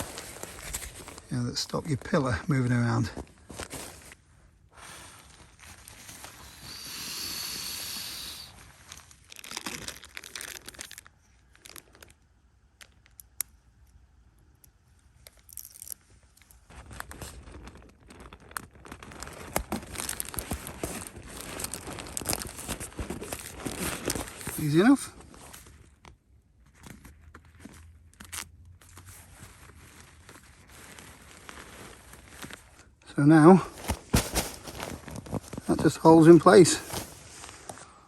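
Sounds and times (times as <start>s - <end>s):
fabric rustling: 0.0s - 6.7s, 16.6s - 26.0s, 26.6s - 38.0s
velcro ripping: 4.8s - 12.0s, 16.6s - 25.7s
steady hiss: 6.2s - 9.0s.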